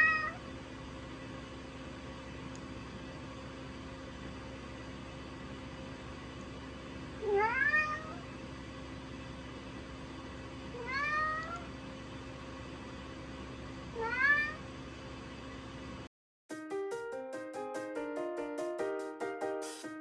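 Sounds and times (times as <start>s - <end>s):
cat meowing: 0.0s - 0.4s, 7.2s - 8.2s, 10.7s - 11.7s, 14.0s - 14.6s.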